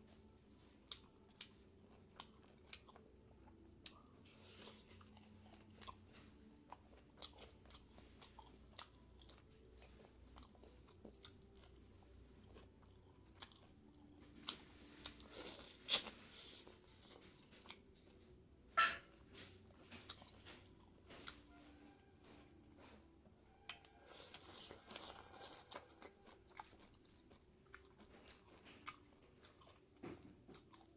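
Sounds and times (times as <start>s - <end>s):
close chewing and crunching: 0.0s - 18.6s, 19.2s - 30.9s.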